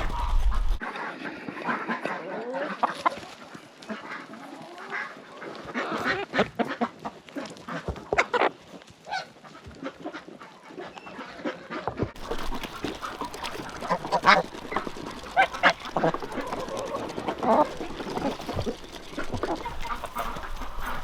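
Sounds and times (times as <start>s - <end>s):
geese honking: 0.0s - 6.9s, 11.2s - 21.0s
ducks quacking: 0.0s - 21.0s.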